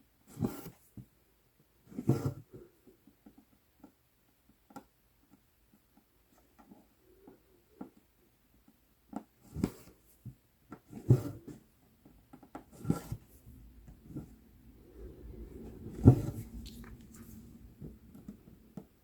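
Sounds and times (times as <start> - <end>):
thread swishing through fabric: 12.7 - 18.5.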